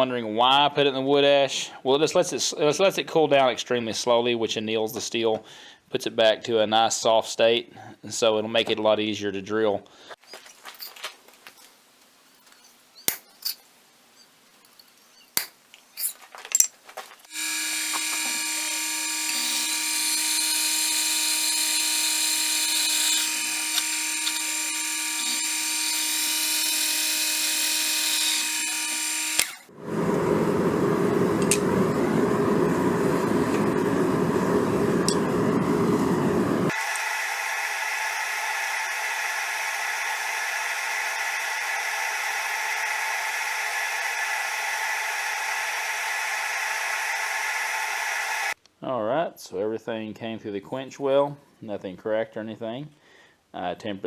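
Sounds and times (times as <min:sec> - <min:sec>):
power drill drilling metal: 0:17.3 - 0:29.7, 0:36.7 - 0:48.6.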